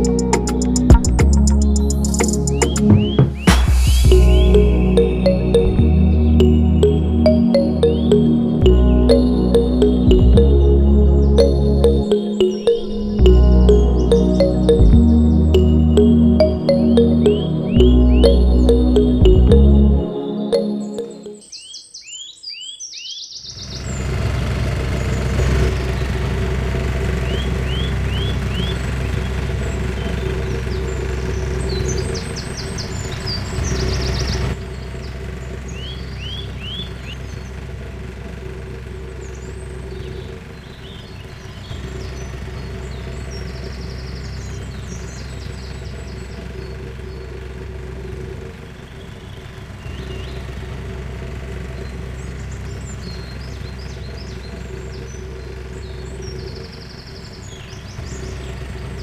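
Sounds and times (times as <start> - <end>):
small birds chirping: 0.0 - 9.2, 27.2 - 37.7, 39.0 - 50.7, 51.4 - 59.0.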